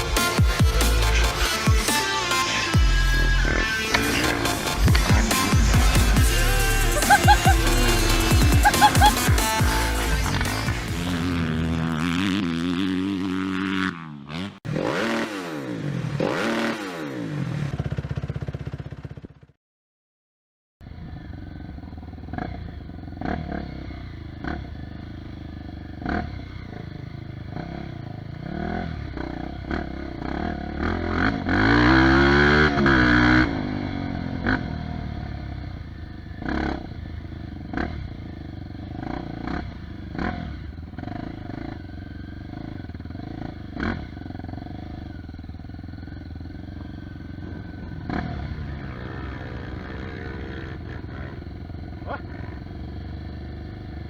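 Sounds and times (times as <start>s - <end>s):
motorcycle engine revving: 0.0s - 19.5s, 20.8s - 54.0s.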